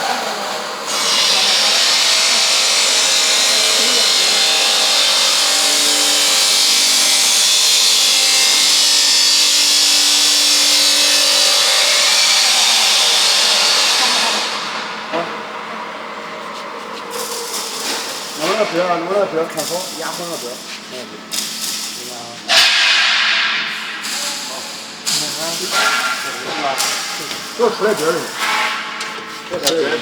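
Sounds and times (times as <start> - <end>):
woodworking machine cutting wood: 0.0 - 15.5.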